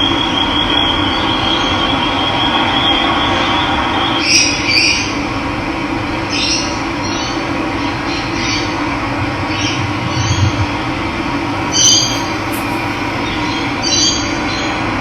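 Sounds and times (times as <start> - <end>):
bird calling: 11.6 - 14.1.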